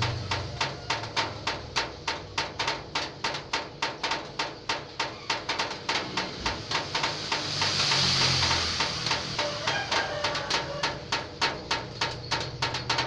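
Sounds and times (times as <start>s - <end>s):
rain dripping on metal roof: 0.0s - 13.0s
hiss: 2.6s - 13.0s.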